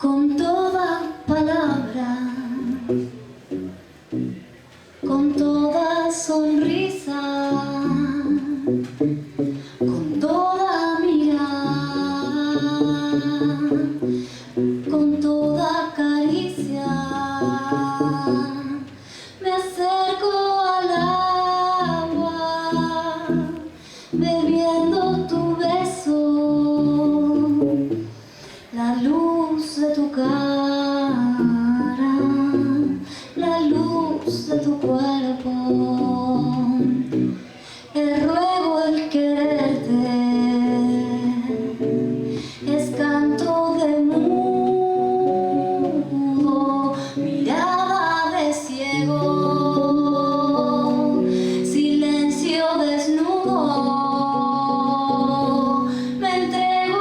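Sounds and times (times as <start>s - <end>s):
woman singing slow song: 0.0s - 4.3s, 5.0s - 57.0s
bass playing low notes: 2.6s - 4.5s, 11.4s - 19.0s, 20.9s - 28.1s.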